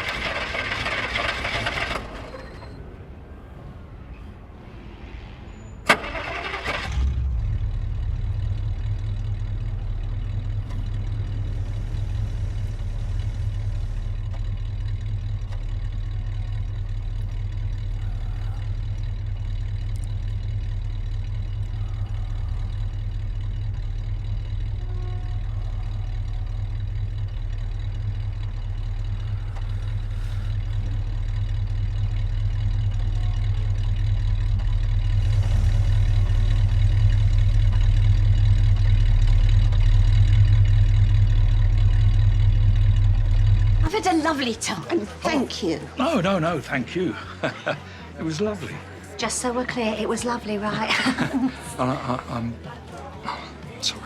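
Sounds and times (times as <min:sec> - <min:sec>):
car engine starting and idling: 0:00.0 - 0:54.0.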